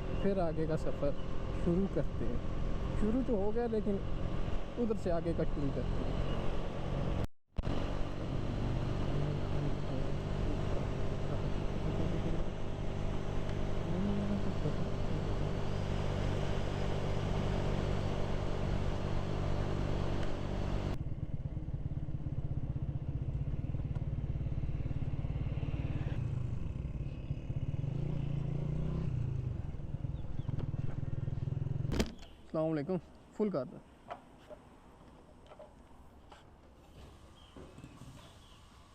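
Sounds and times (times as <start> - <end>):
wind and road noise: 0.0 - 38.9
motorcycle engine running: 6.1 - 32.2.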